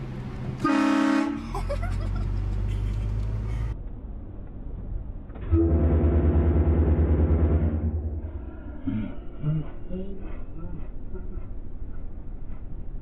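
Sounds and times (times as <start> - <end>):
road noise: 0.0 - 13.0
low throbbing engine note: 5.4 - 10.8.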